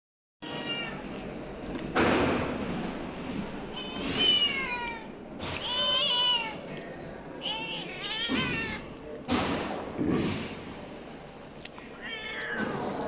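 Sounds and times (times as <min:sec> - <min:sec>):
cat meowing: 0:00.4 - 0:01.2, 0:07.4 - 0:08.9, 0:12.0 - 0:13.0.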